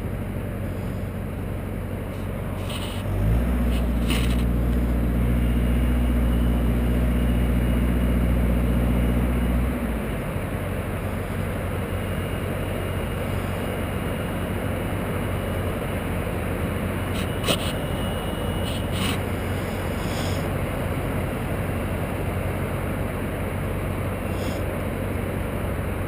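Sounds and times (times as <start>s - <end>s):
steady rough noise: 0.0s - 7.9s, 12.4s - 22.2s, 24.0s - 24.8s
engine running: 0.0s - 26.0s.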